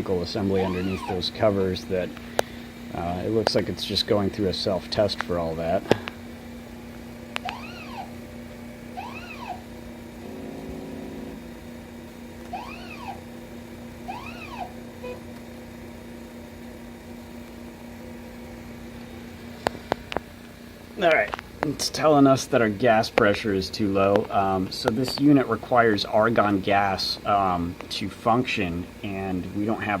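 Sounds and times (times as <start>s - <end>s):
steady hum: 0.0s - 30.0s
motor buzzing: 7.4s - 8.2s, 8.9s - 13.3s, 14.0s - 14.8s
stepper motor whines: 7.4s - 8.2s, 8.9s - 13.3s, 14.0s - 15.2s.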